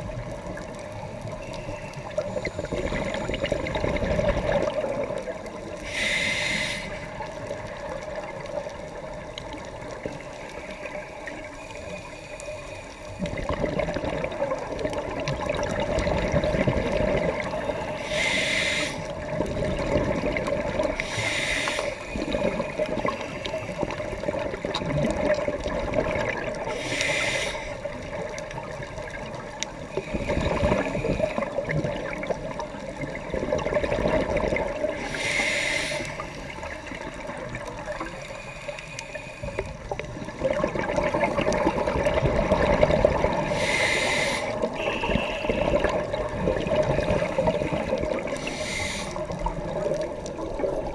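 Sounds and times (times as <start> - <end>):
bubbles gurgling underwater: 0.0 - 5.9, 13.2 - 18.0, 19.0 - 21.1, 22.2 - 26.8, 27.8 - 35.2, 36.4 - 38.2, 39.5 - 50.9
hissing regulator inhalations: 5.6 - 7.5, 17.6 - 19.4, 20.9 - 24.2, 26.6 - 28.1, 34.9 - 37.0, 37.9 - 40.0, 43.3 - 46.1, 47.0 - 49.9.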